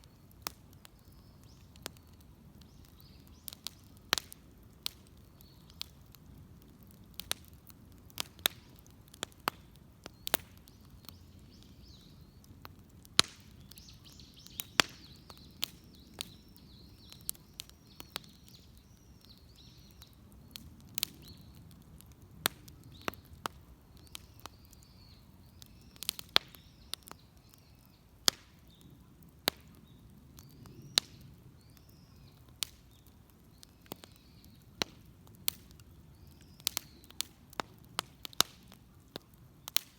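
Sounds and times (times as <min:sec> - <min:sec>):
birds chirping: 0:00.0 - 0:04.0, 0:09.7 - 0:21.7, 0:22.7 - 0:34.8, 0:35.7 - 0:37.6
wood fire crackling: 0:00.0 - 0:39.9.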